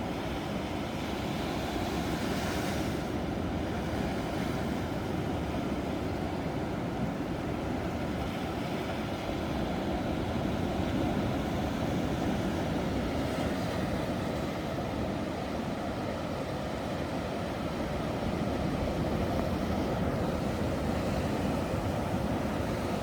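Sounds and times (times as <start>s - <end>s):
ocean waves breaking on shore: 0.0s - 23.0s.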